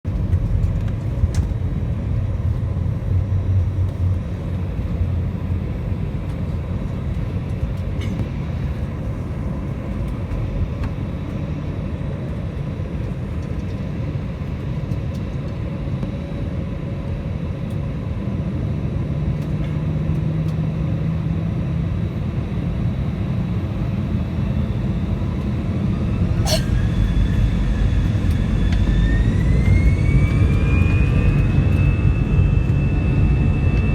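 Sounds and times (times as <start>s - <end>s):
jet engines rumbling: 0.1s - 33.9s
jet engines spooling up: 25.4s - 33.9s.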